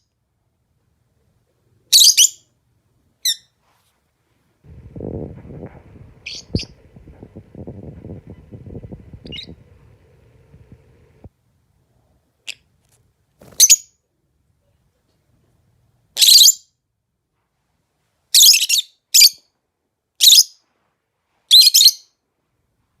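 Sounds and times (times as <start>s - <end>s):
bird chirping: 4.9s - 11.3s.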